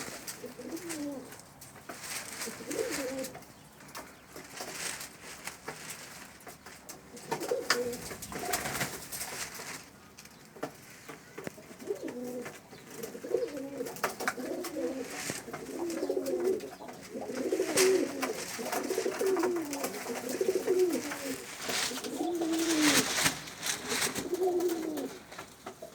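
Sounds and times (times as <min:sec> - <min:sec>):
pigeons cooing: 0:00.0 - 0:04.2, 0:07.1 - 0:09.2, 0:11.3 - 0:25.9
short sharp rustles or taps: 0:00.0 - 0:25.9.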